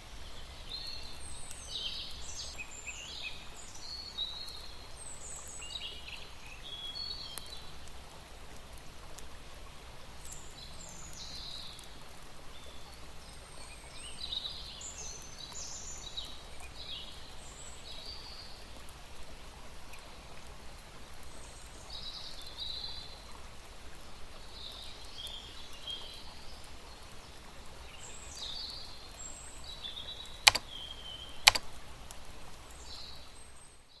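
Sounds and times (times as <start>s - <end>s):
outdoor hush: 30.5s - 30.7s, 31.5s - 31.7s
sharp clicks: 30.5s - 30.7s, 31.4s - 31.7s.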